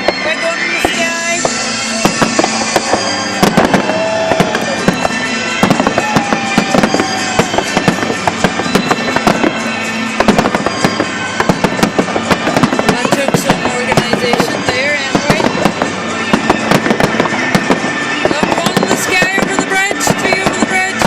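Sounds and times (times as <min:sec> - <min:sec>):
fireworks bangs and crackles: 0:00.0 - 0:21.0
fireworks whistling: 0:00.0 - 0:21.0.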